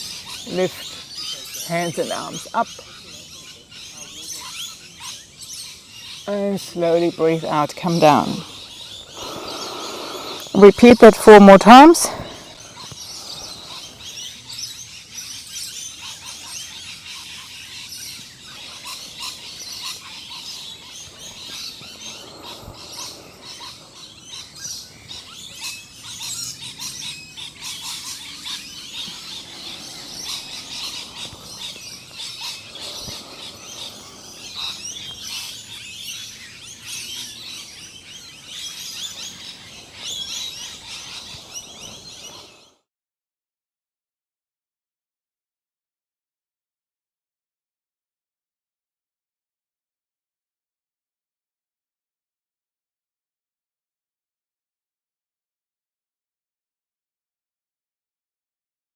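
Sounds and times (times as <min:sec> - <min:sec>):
songbirds chirping: 0:00.0 - 0:42.8.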